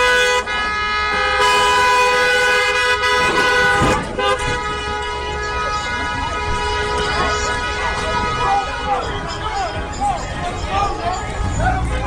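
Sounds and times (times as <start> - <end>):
car horn two-tone blaring: 0.0 - 9.8
voices shouting: 4.8 - 12.0.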